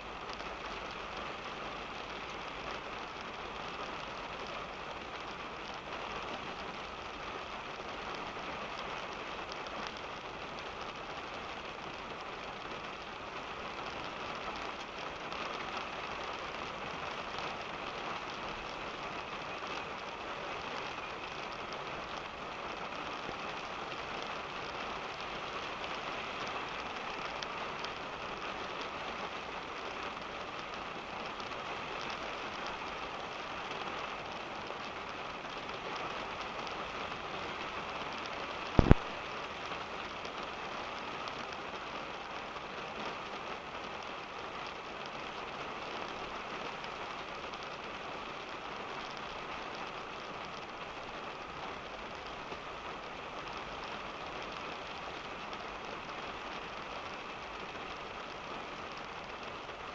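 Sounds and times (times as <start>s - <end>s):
rain on a car roof: 0.0s - 59.9s.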